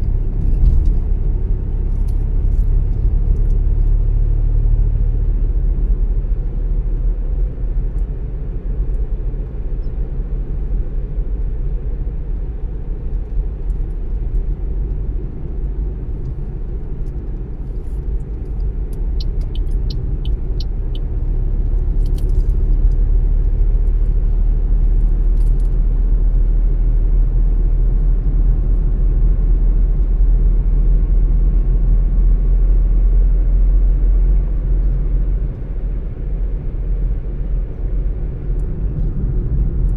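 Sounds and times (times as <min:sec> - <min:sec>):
engine and tyre rumble: 0:00.0 - 0:39.9.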